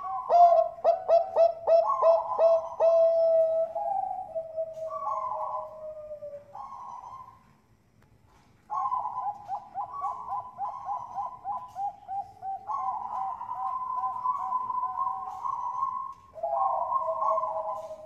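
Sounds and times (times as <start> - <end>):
dove cooing: 0.0 - 7.6, 8.3 - 18.0.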